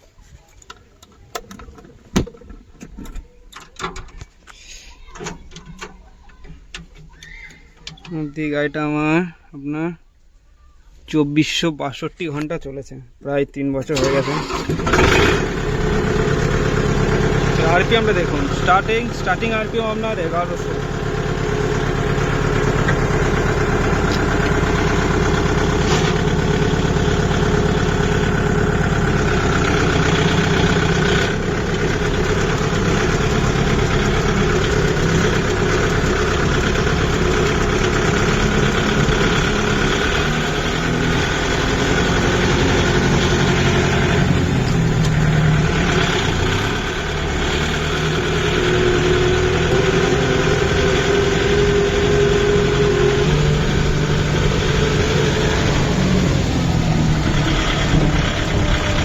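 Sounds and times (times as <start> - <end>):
tractor diesel engine idling: 13.9 - 59.0.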